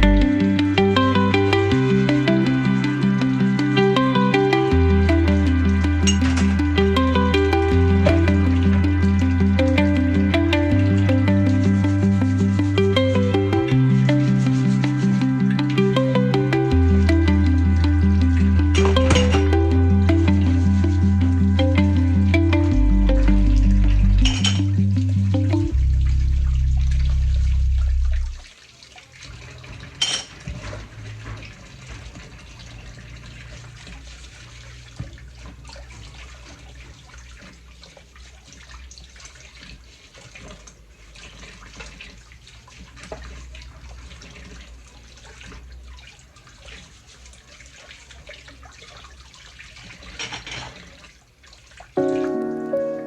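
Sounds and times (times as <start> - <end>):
background music: 0.0 - 27.1, 52.0 - 53.0.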